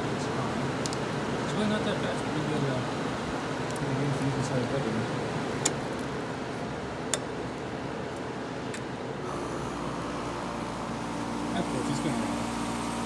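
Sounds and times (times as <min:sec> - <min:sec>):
air conditioner fan rushing: 0:00.0 - 0:13.0
low hum: 0:09.2 - 0:13.0.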